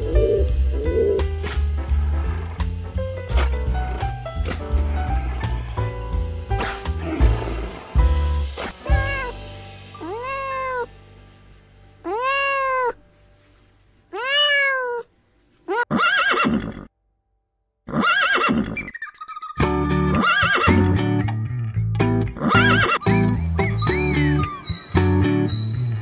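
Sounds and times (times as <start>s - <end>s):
cat meowing: 8.9s - 9.4s, 10.0s - 10.9s, 12.0s - 13.0s, 14.1s - 15.1s
horse whinnying: 15.7s - 16.9s, 17.9s - 19.5s, 20.2s - 20.9s, 22.4s - 23.2s.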